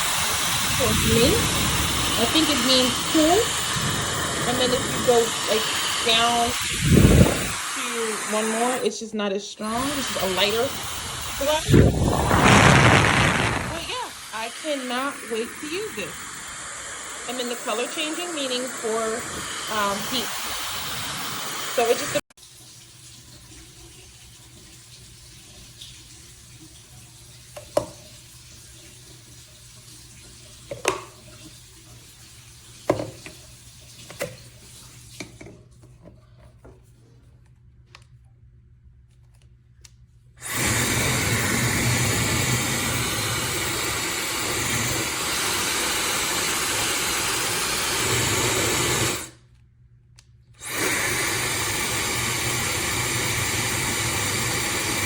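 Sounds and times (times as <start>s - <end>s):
hair dryer blowing: 0.0s - 9.0s, 9.6s - 22.3s, 40.4s - 49.4s, 50.6s - 55.0s.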